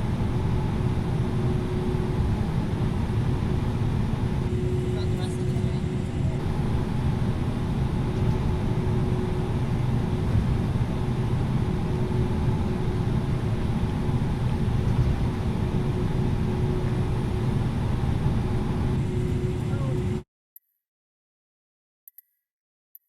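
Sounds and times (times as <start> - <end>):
airplane cabin noise: 0.0 - 20.2.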